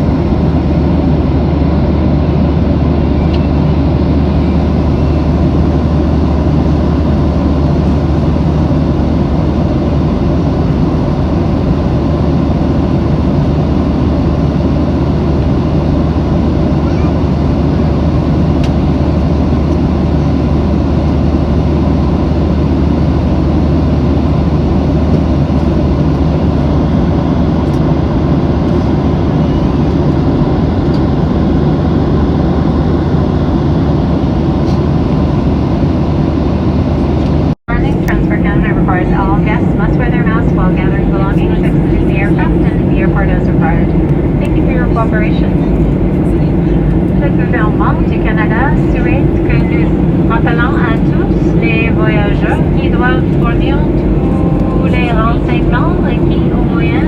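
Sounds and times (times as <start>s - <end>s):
airliner cabin engine roar: 0.0s - 57.0s
faint steady hum: 37.7s - 57.0s.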